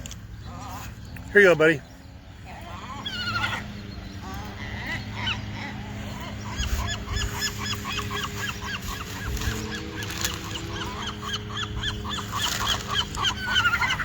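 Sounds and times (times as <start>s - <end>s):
seagulls calling: 0.0s - 14.0s.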